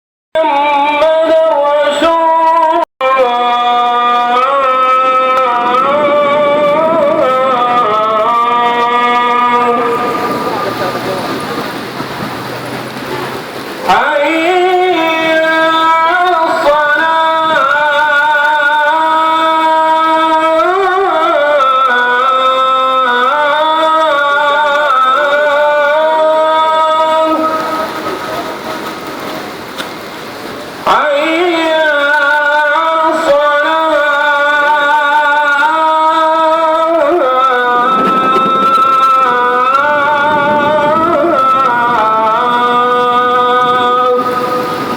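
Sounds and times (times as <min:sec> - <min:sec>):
person singing long bending notes: 0:00.4 - 0:29.7, 0:30.8 - 0:44.9
rushing noise: 0:04.2 - 0:19.2, 0:24.0 - 0:31.7, 0:36.4 - 0:44.9.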